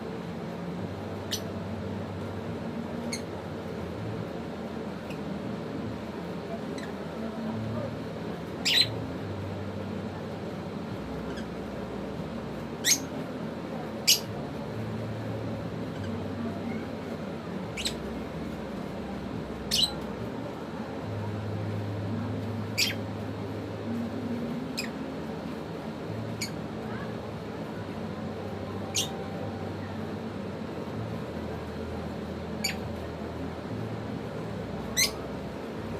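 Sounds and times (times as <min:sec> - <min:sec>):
steady low hum: 0:00.0 - 0:35.9
birds chirping shrilly: 0:12.8 - 0:13.2.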